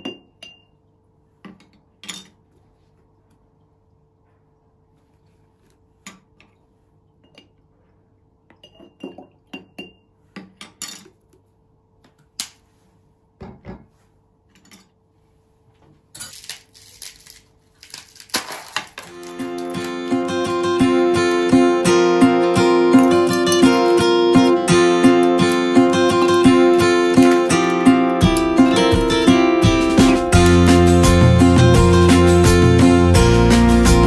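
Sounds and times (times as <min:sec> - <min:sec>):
kitchenware clattering and clinking: 0:01.4 - 0:02.5, 0:08.5 - 0:11.4, 0:13.4 - 0:13.9, 0:14.5 - 0:15.0, 0:18.3 - 0:20.0, 0:25.1 - 0:29.4.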